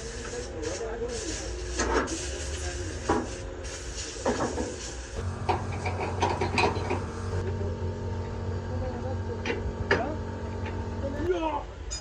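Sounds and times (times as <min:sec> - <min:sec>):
low engine hum: 0:05.2 - 0:11.3.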